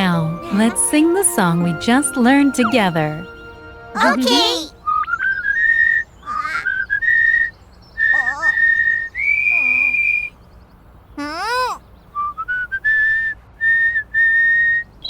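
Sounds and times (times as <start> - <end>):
wobbling squeaky sounds: 4.0 - 7.4, 8.0 - 10.3
whistled bird song: 4.8 - 10.8, 11.8 - 15.0.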